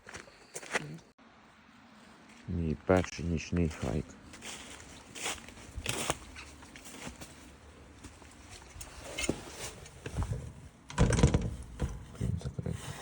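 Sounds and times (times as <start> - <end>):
outdoor gear rustling: 4.2 - 12.2.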